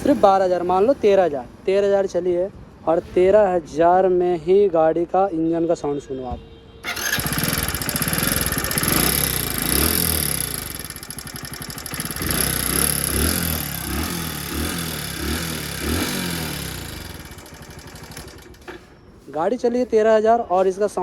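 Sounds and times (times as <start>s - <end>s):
motorcycle engine revving: 0.0s - 0.9s, 6.8s - 19.0s
rough mechanical engine noise: 6.8s - 19.5s.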